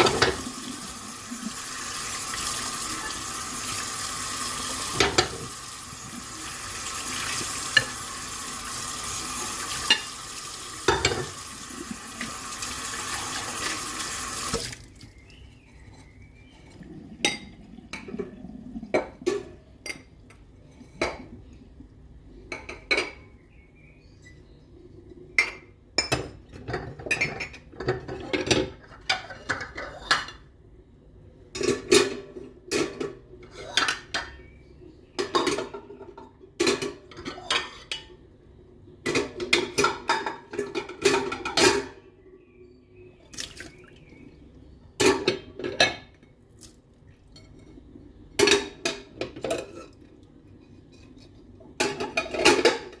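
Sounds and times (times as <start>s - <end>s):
tap water running into sink: 0.0s - 15.1s
dishes and cutlery clinking: 4.9s - 5.5s, 10.8s - 11.4s, 25.4s - 30.4s, 47.3s - 47.8s, 48.4s - 50.0s, 50.6s - 53.0s.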